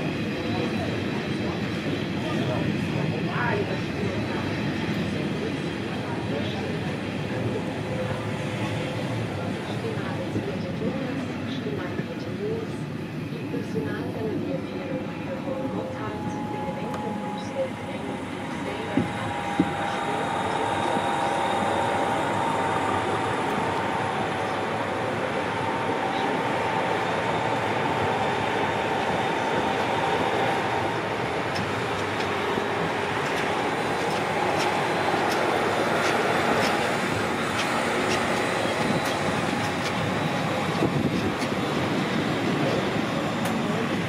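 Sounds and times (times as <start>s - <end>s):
train wheel-on-rail noise: 0.0s - 44.0s.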